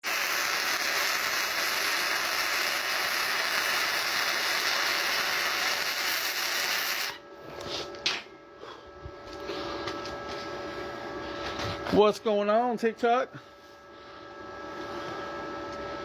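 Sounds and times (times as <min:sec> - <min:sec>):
welding arc crackling and hissing: 0:00.0 - 0:07.2.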